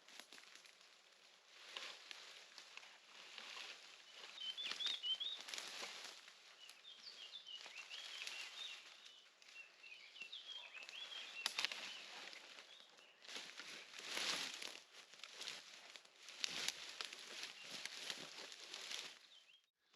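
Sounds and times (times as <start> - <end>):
dry undergrowth rustling and crackling: 0.0 - 19.7
small birds twittering: 3.2 - 19.7.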